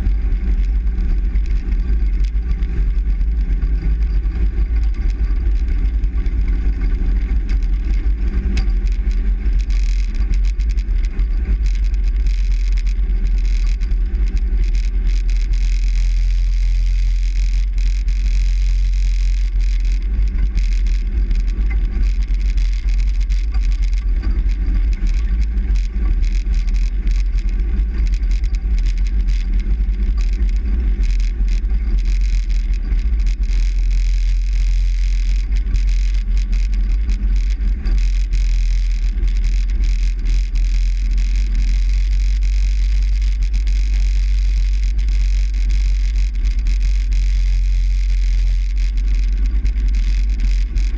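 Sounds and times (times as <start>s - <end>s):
faint engine hum: 0.0s - 50.9s.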